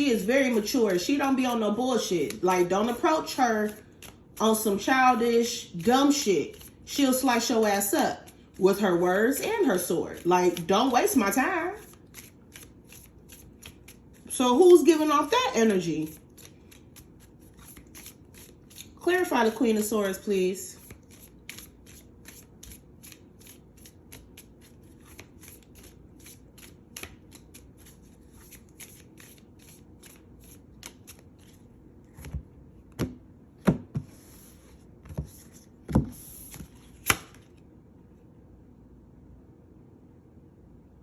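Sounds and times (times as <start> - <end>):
cards being shuffled: 0.4 - 4.9, 5.7 - 6.9, 9.4 - 14.3, 15.7 - 19.6, 20.8 - 33.1, 34.0 - 37.6.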